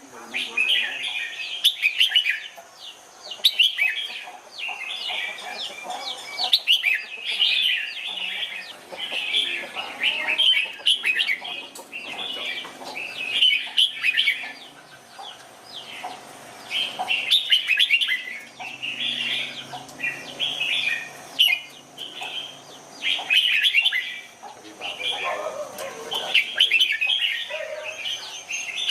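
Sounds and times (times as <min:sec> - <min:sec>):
birds chirping: 0:00.0 - 0:28.9.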